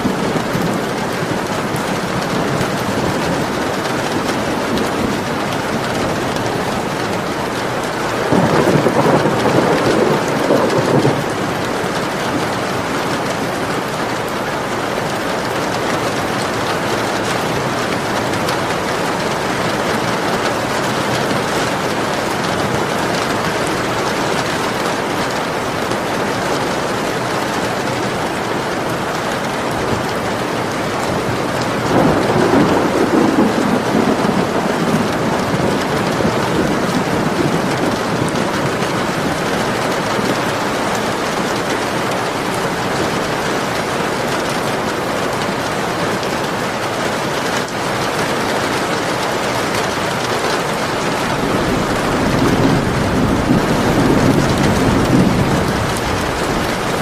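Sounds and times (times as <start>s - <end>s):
thunder rumble: 0.0s - 14.2s, 29.6s - 44.2s, 50.8s - 57.0s
heavy rain hissing: 0.0s - 57.0s.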